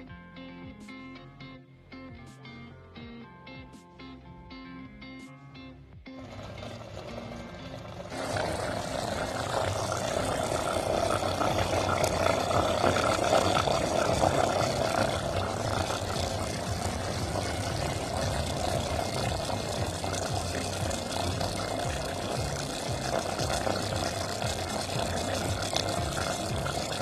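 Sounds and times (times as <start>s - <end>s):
chicken sizzling in a pan: 8.1s - 27.0s.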